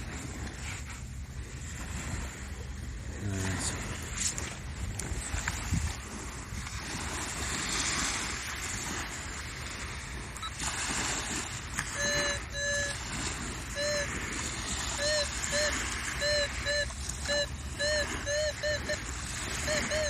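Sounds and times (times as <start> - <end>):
wind and surf: 0.0 - 20.0
metal detector beeps: 10.4 - 10.6, 11.8 - 14.2, 14.9 - 20.0.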